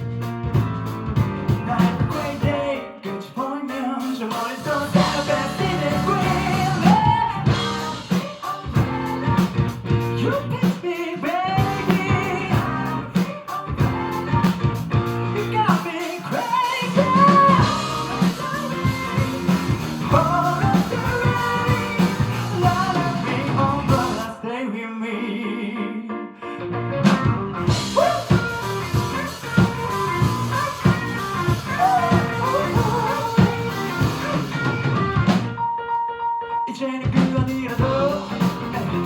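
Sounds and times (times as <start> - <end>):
bass guitar: 0.0 - 2.7, 4.7 - 10.7, 11.4 - 15.8, 16.9 - 24.2, 26.6 - 35.6, 37.2 - 39.0
drum kit: 0.0 - 24.3, 27.0 - 35.7, 37.0 - 39.0
person singing: 1.5 - 26.6, 27.7 - 35.4, 36.5 - 39.0
electric guitar: 16.2 - 24.2, 27.0 - 35.6.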